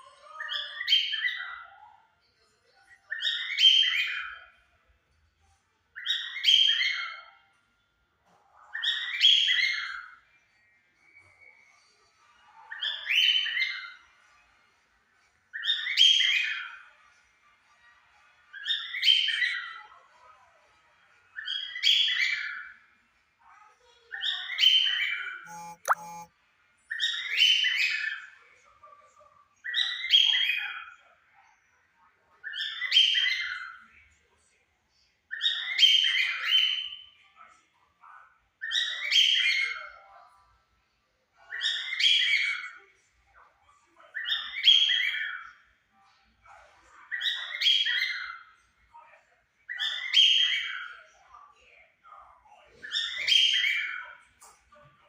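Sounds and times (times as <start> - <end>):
faint thin whistle: 25.5 - 26.3.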